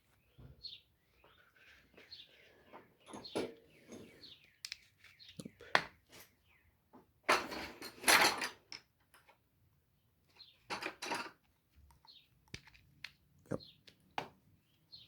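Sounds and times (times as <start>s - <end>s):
faint bird chirping: 0.0s - 6.9s, 9.9s - 10.7s, 11.9s - 12.4s, 13.4s - 15.0s
tools scraping and rattling: 1.3s - 4.4s, 7.3s - 8.7s, 10.7s - 11.4s.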